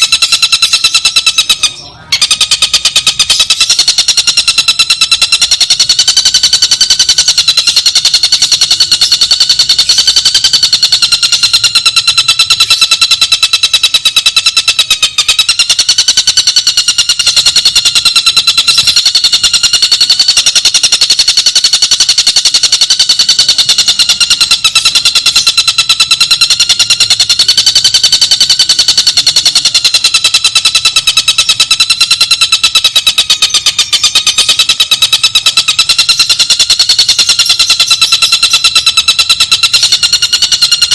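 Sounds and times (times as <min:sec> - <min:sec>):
rapid bird trill: 0:00.0 - 0:40.9.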